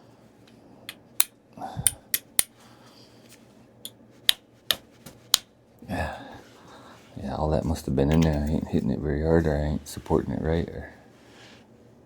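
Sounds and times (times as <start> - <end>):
stone tapping with sharp clicks: 0.9 - 2.5.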